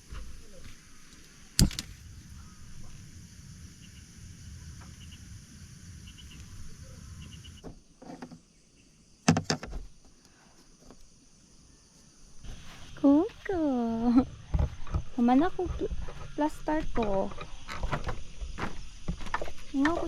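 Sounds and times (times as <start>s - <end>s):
insects droning: 0.0s - 20.0s
sharp click: 1.6s - 2.0s.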